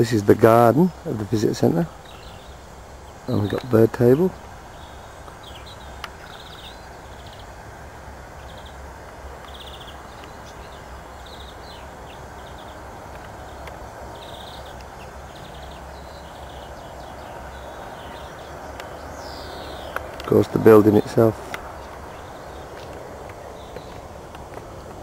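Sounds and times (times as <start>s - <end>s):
small birds chirping: 0.0s - 25.0s
steady outdoor hiss: 0.0s - 25.0s.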